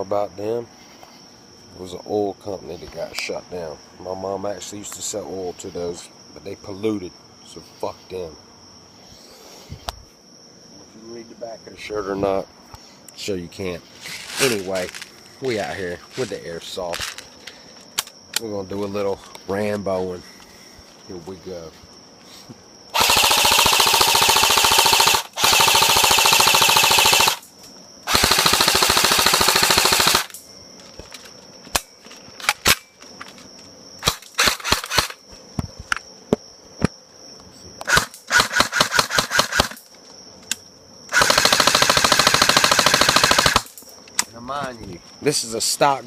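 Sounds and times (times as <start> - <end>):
crickets chirping: 0.0 - 46.0
airsoft rifle firing: 23.0 - 27.4, 28.1 - 30.4, 34.0 - 35.2, 37.9 - 39.8, 41.1 - 43.8.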